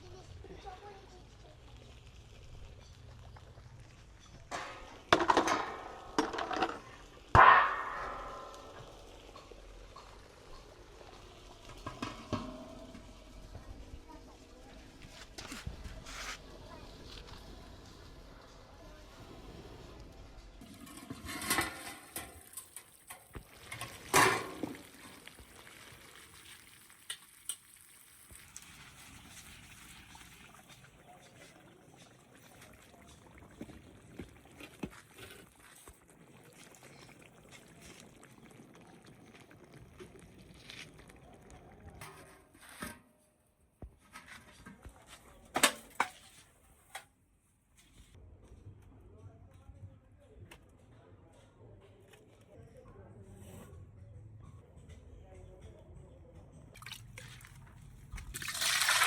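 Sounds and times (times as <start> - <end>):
cooking pots and utensils clattering: 1.7 - 16.4, 20.6 - 43.3, 44.0 - 47.0.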